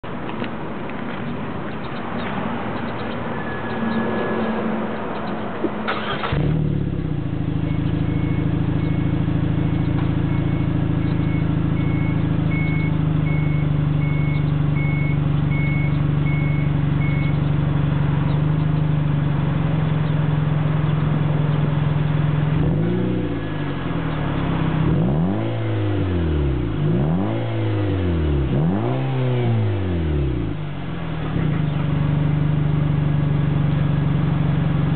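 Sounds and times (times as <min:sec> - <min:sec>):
car engine idling and revving: 0:00.0 - 0:34.9.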